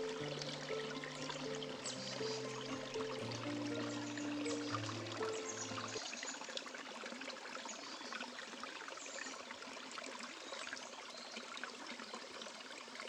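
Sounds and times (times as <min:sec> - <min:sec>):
high bird chirps: 0:00.0 - 0:06.0
running water rushing: 0:00.0 - 0:13.0.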